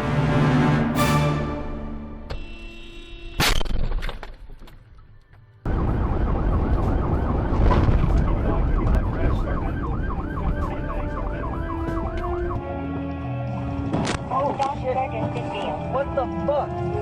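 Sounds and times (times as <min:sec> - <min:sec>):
siren yelping: 0:05.7 - 0:12.7
road traffic noise: 0:05.7 - 0:17.0.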